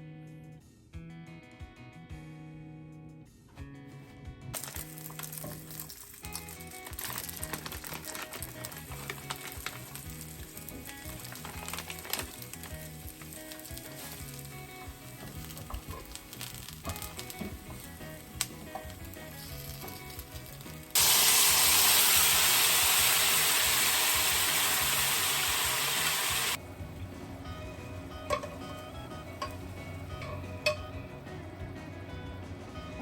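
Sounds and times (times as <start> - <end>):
food sizzling in a hot pan: 4.6 - 26.6.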